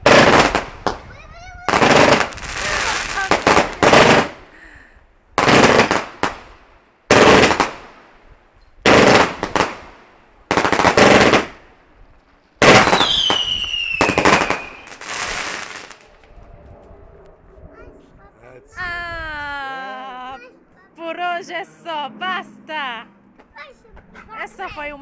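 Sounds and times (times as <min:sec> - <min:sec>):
fireworks bangs with crackle: 0:00.0 - 0:04.5, 0:05.4 - 0:08.1, 0:08.8 - 0:16.2
falling firework whistle: 0:12.7 - 0:16.0.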